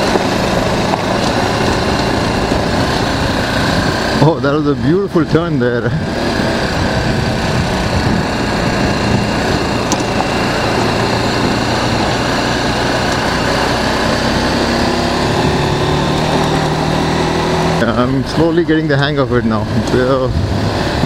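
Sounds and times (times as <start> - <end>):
motorcycle engine running: 0.0 - 21.0
road noise: 0.0 - 21.0
wind noise: 0.0 - 21.0.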